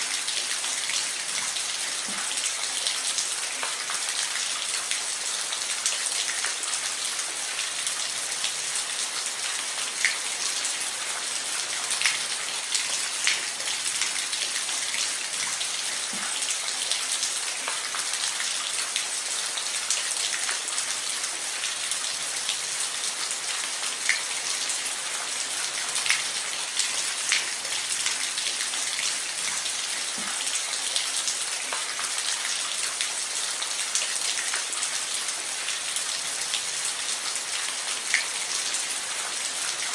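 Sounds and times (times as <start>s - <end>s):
rain on a roof: 0.0s - 39.9s.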